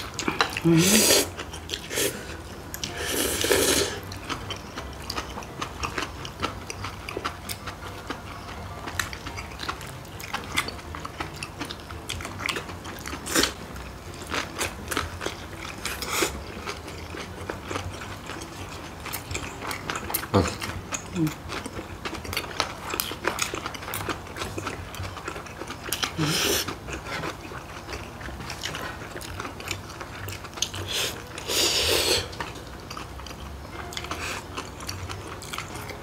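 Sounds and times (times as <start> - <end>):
biting and chewing: 0.0 - 36.0
slurping noodles: 0.7 - 4.0, 30.8 - 32.4.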